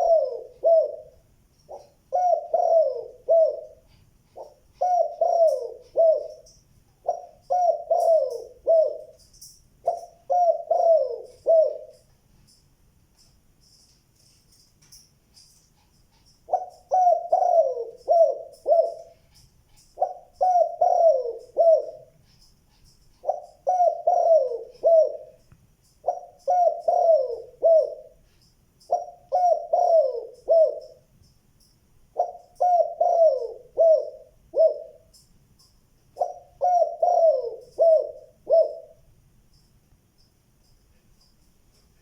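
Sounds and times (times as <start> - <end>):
dove cooing: 0.0 - 12.1, 15.8 - 31.1, 32.1 - 35.2, 36.1 - 39.1
small bird chirps: 13.6 - 39.8.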